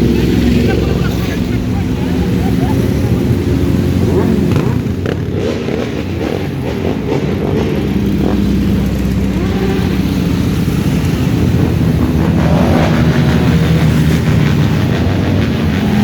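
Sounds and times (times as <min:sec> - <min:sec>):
motorcycle engines running: 0:00.0 - 0:16.0.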